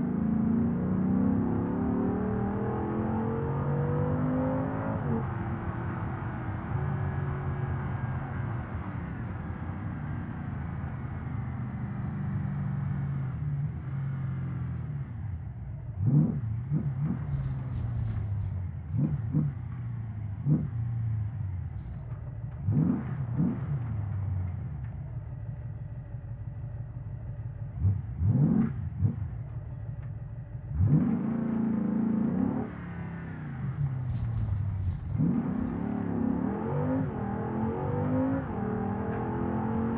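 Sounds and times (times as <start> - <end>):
car engine revving: 16.0 - 39.9.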